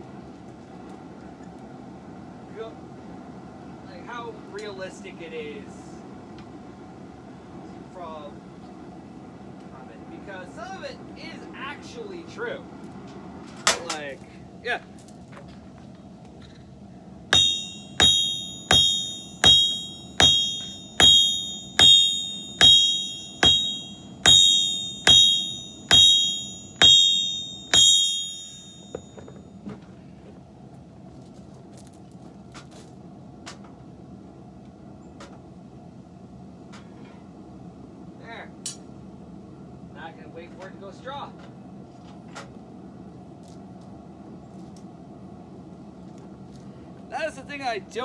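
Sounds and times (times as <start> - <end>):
hammer blows on an anvil: 17.4 - 29.3.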